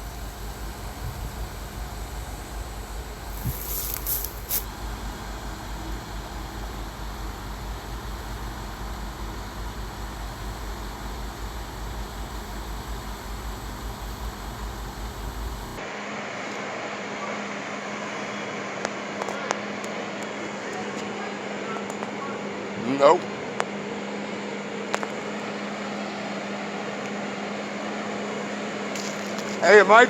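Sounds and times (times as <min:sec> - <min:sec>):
vehicle rumble and road noise: 0:00.0 - 0:15.9, 0:19.2 - 0:30.0
short high hisses: 0:03.3 - 0:04.7.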